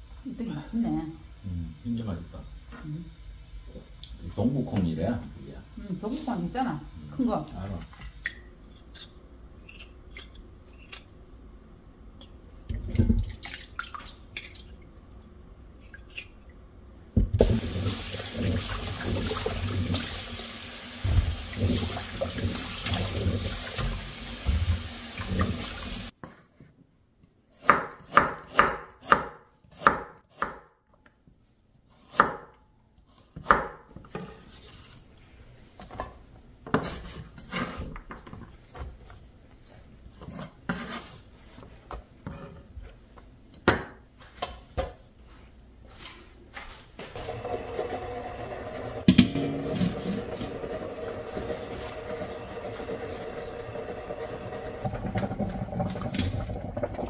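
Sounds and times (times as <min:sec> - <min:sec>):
tap water running into sink: 0:17.2 - 0:26.1, 0:49.0 - 0:57.0.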